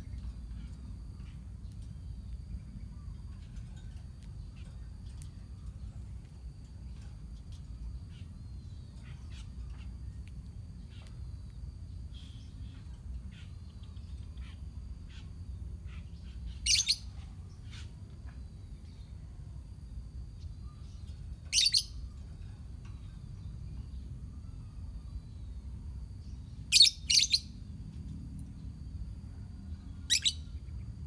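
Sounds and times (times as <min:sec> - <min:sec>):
lovebirds chirping: 0:12.1 - 0:18.0, 0:20.6 - 0:22.2, 0:26.7 - 0:27.5, 0:30.0 - 0:30.9.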